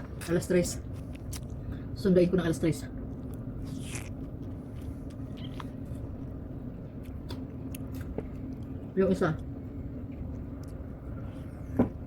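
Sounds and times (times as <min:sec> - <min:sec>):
steady low hum: 0:00.0 - 0:12.0
person chewing cake: 0:00.9 - 0:01.9, 0:03.0 - 0:06.2, 0:06.9 - 0:11.3.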